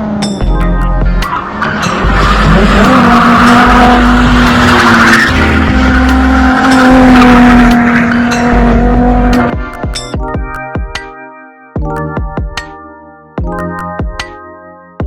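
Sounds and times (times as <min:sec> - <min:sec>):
car engine at high revs: 0:00.0 - 0:09.8
tyres squealing: 0:01.3 - 0:09.4.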